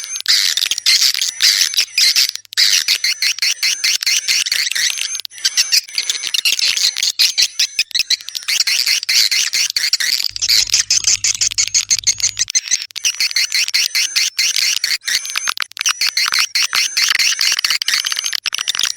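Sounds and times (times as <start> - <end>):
swiftlets twittering: 10.3 - 12.5.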